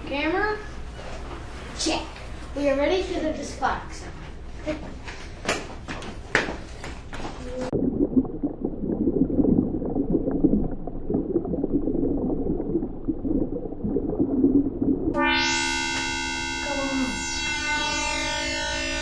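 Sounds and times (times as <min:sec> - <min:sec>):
low muffled rumbling: 0:00.0 - 0:05.0, 0:07.5 - 0:15.4
sustained electronic chord: 0:15.1 - 0:19.0.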